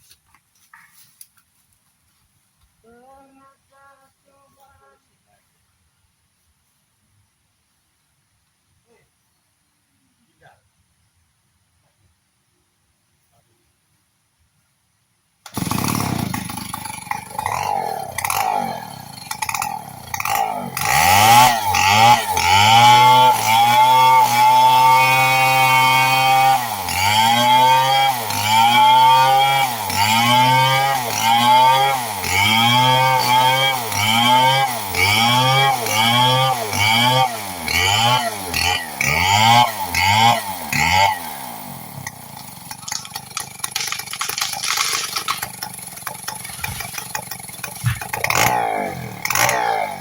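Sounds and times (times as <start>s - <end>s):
chainsaw revving: 15.5s - 50.0s.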